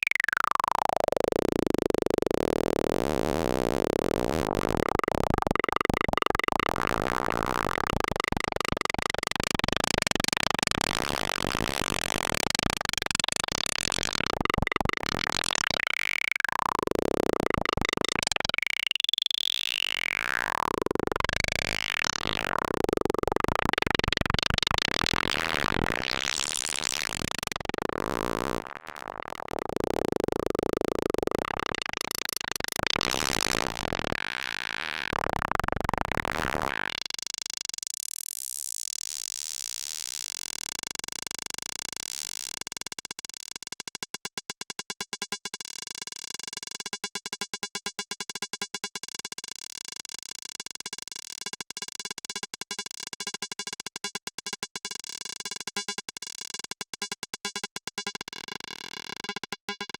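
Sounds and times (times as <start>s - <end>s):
plucky synthesizer tones: 2.2s - 15.9s, 16.6s - 36.2s.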